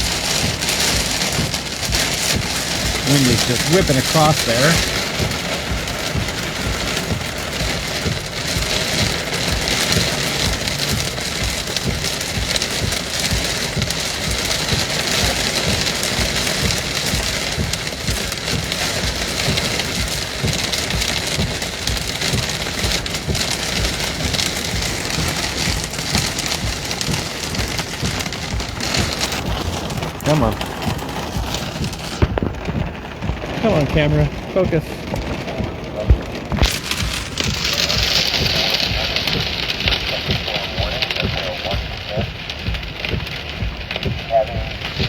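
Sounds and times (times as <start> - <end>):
heavy rain pouring: 0.0 - 45.0
wind rumbling on microphone: 0.0 - 45.0.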